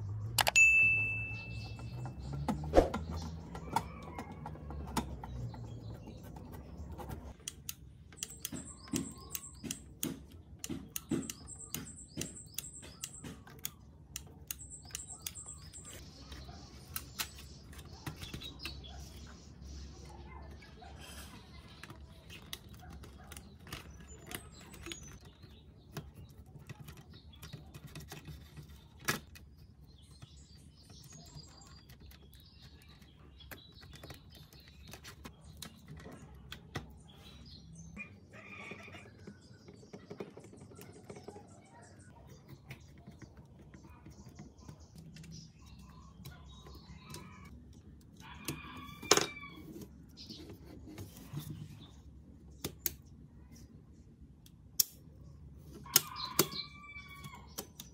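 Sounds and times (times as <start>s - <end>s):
plastic parts clicking and tapping: 1.8s - 16.0s.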